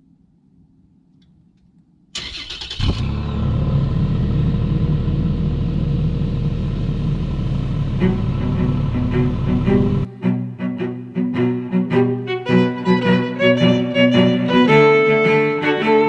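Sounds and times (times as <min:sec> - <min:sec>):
car engine starting and running: 0:02.2 - 0:10.1.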